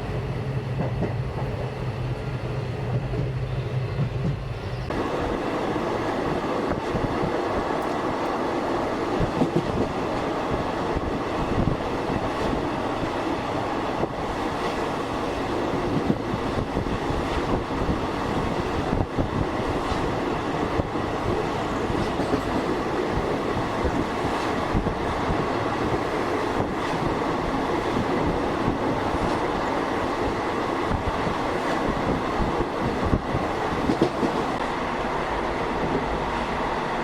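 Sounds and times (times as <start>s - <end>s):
train coach rumbling and rattling: 0.0s - 37.0s
wheels clattering on rails: 19.6s - 27.2s.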